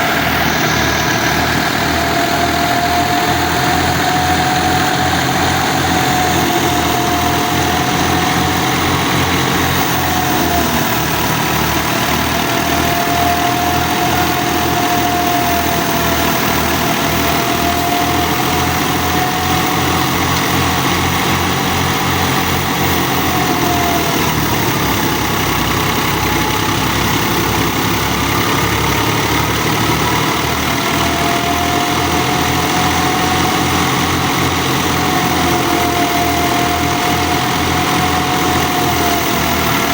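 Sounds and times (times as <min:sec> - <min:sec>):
high whine: 0:00.0 - 0:25.6
tractor diesel engine: 0:00.0 - 0:39.9.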